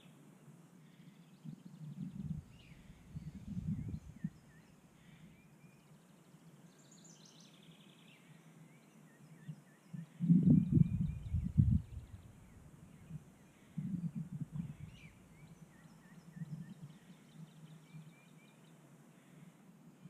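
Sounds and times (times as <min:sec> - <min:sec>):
small birds chirping: 0:00.0 - 0:19.7
wind buffeting microphone: 0:01.8 - 0:04.4, 0:10.2 - 0:15.5.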